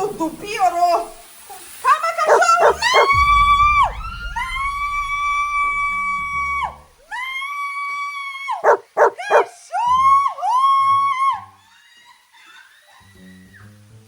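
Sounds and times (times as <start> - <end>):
dog yelping: 2.3 - 3.1, 8.6 - 9.5
dog howling: 2.3 - 3.9, 8.5 - 9.5.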